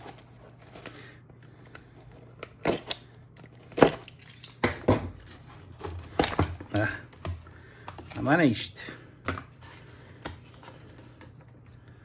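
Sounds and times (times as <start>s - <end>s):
packaging clicking and snapping: 0.0s - 8.0s.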